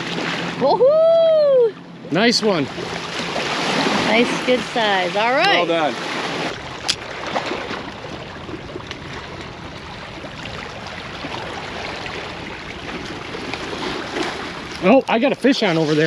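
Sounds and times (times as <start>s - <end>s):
ocean surf washing onto beach: 0.0s - 16.0s.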